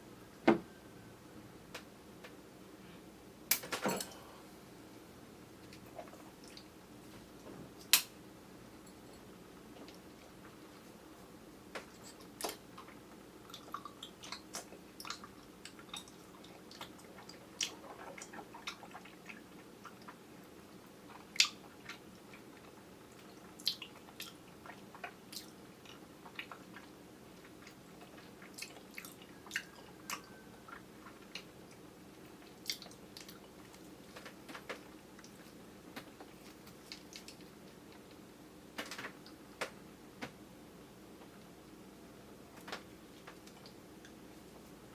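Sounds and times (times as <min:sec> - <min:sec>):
faint steady hum: 0:00.0 - 0:44.9
mouth chewing wetly: 0:12.8 - 0:20.2, 0:21.0 - 0:33.9.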